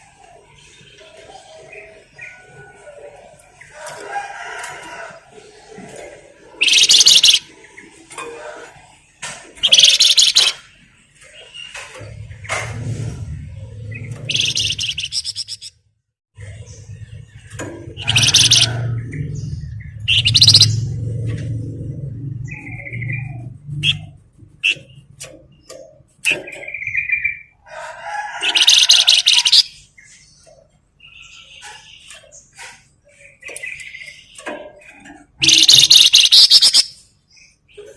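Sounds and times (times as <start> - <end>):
songbird chattering trills: 6.6 - 7.5, 9.6 - 10.6, 14.0 - 15.7, 17.9 - 21.0, 28.4 - 30.2, 33.2 - 37.1
songbird chirps and whistles: 6.6 - 7.5, 9.6 - 10.6, 14.1 - 15.7, 20.1 - 20.8, 35.4 - 37.0.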